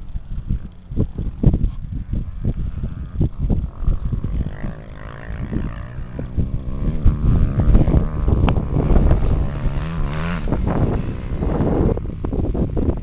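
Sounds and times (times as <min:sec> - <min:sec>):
racing engines revving: 0:02.9 - 0:12.0.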